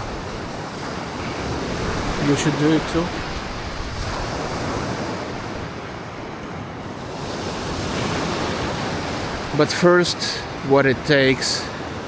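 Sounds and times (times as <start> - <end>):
wind on microphone: 0.0 - 9.6
surf washing on shore: 0.0 - 12.0.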